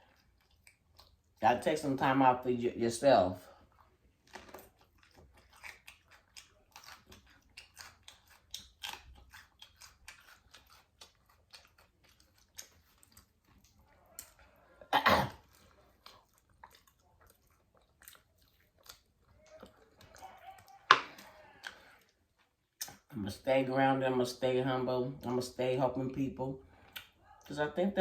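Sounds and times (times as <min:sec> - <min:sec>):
chewing with wet mouth clicks: 0:00.0 - 0:01.4, 0:03.4 - 0:23.2, 0:26.8 - 0:27.6
lip smacks: 0:03.6 - 0:14.6, 0:15.4 - 0:23.2, 0:26.8 - 0:27.5.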